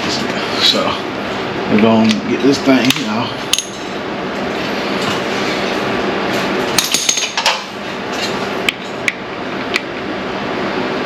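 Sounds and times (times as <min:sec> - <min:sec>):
steady background noise: 0:00.0 - 0:11.0
metal tools clinking: 0:06.8 - 0:07.6.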